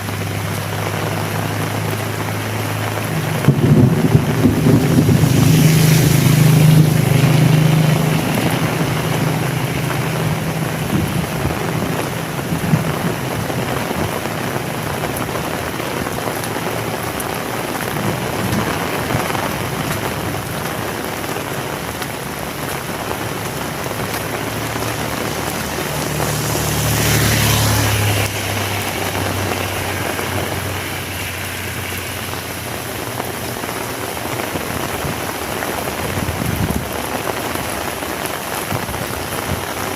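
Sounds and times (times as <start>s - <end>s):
heavy rain falling: 0.0s - 39.9s
low rumble: 2.6s - 14.2s.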